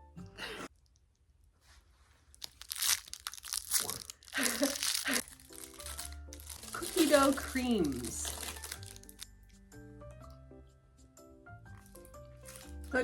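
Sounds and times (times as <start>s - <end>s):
plastic snack packaging tearing and rustling: 2.2s - 9.3s, 11.8s - 13.0s.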